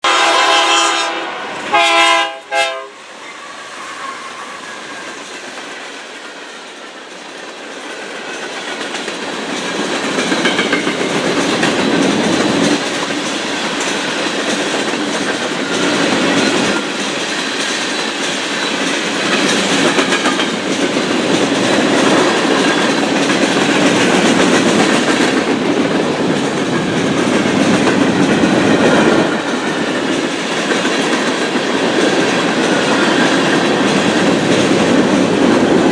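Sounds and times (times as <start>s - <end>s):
train horn blasts: 0.0s - 3.0s
train rumble and wheel clatter: 0.0s - 35.9s.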